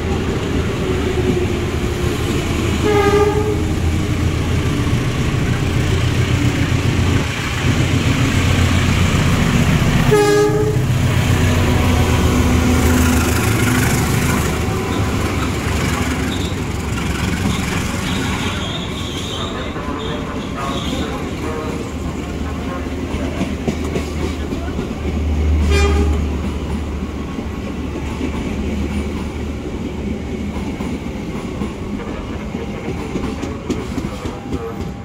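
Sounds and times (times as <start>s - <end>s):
passenger coaches rolling by: 0.0s - 35.0s
train wheels rumbling on rails: 0.0s - 35.0s
train horn blasts: 2.8s - 3.8s, 10.0s - 11.1s, 25.6s - 26.3s.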